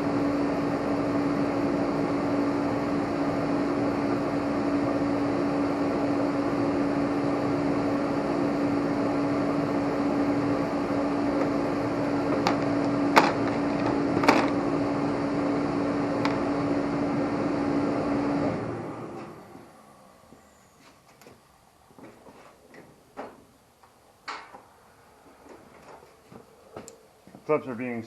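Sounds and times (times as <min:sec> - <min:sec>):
machine hum: 0:00.0 - 0:27.7.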